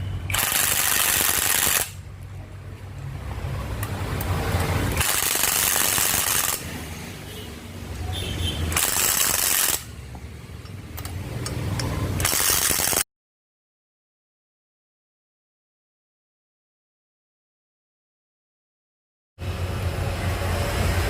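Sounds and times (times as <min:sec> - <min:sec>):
impact wrench bursts: 0:00.2 - 0:02.0, 0:04.6 - 0:06.9, 0:08.6 - 0:10.2, 0:10.9 - 0:13.0.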